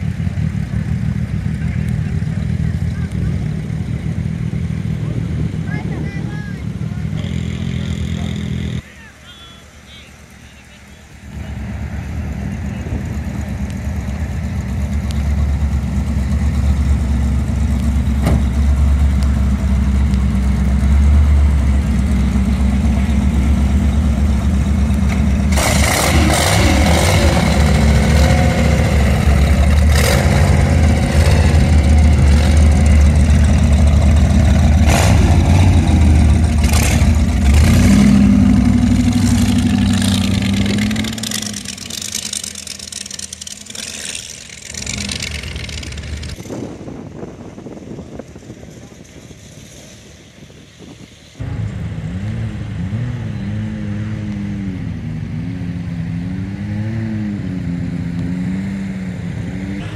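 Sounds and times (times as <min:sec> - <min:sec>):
engines idling with deep rumble: 0:00.0 - 0:56.4
rough engine with sharp pops: 0:17.6 - 0:23.4, 0:24.7 - 0:46.6.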